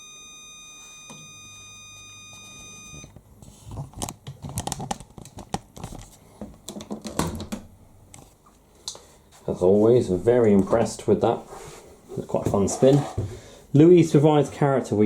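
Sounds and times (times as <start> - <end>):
washing machine signal tone: 0.0 - 3.2.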